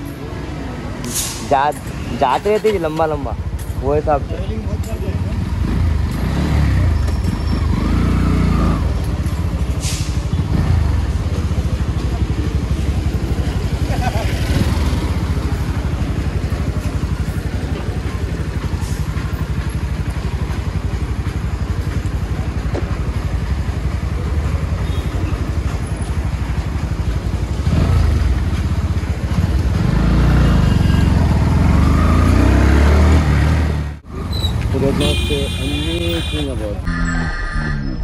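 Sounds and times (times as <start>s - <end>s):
motorcycle engine revving: 2.4s - 37.1s.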